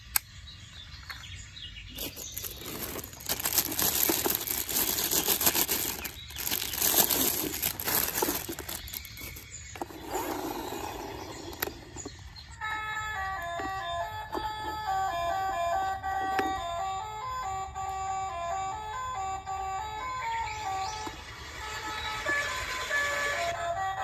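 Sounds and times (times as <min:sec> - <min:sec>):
rustling clattering noise: 0:01.9 - 0:12.3.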